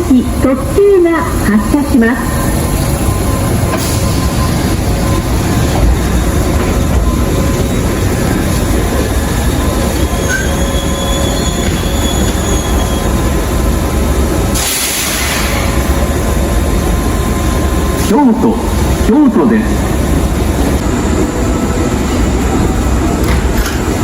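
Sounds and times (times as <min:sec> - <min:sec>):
electric train running: 0:00.0 - 0:24.0
high wheel squeal: 0:08.0 - 0:13.2
hiss burst: 0:14.6 - 0:15.8.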